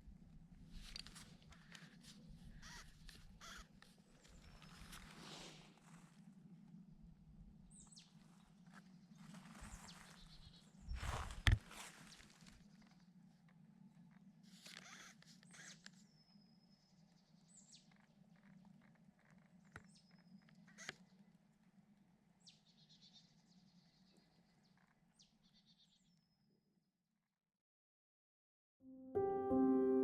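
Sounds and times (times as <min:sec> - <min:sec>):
wild bird calls: 0:01.5 - 0:05.6.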